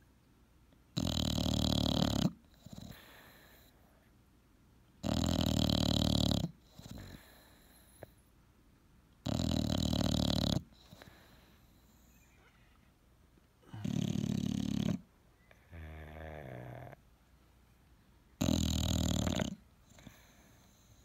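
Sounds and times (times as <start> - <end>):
dog snoring: 1.0 - 3.7, 5.0 - 8.1, 9.2 - 12.6, 13.6 - 15.1, 15.7 - 17.0, 18.4 - 21.0
soft breath: 2.9 - 4.2, 6.8 - 8.3, 10.7 - 13.0, 19.8 - 21.0.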